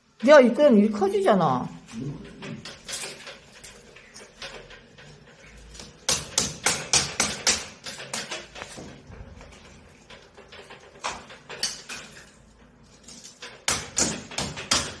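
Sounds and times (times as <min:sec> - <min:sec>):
hammer strikes: 0:05.8 - 0:08.9, 0:13.6 - 0:15.0.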